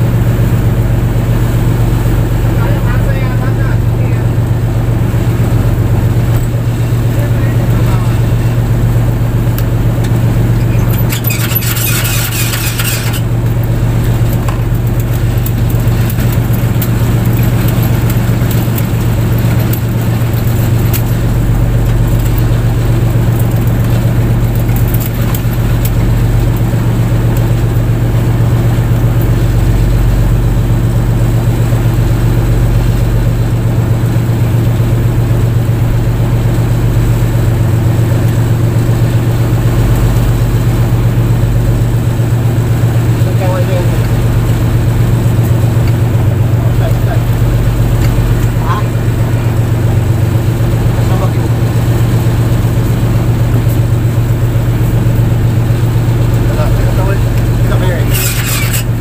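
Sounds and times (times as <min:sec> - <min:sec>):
boat engine drone: 0:00.0 - 0:59.0
brief high rattle: 0:10.7 - 0:13.3, 0:57.8 - 0:59.0.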